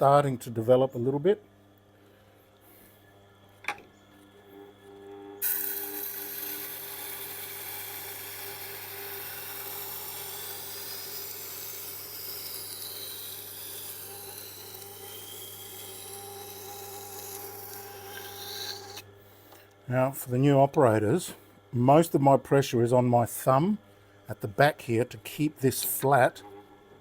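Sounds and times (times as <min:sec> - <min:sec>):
grinder motor hum: 0:04.2 - 0:21.0
knife grinding on stone: 0:14.0 - 0:19.6.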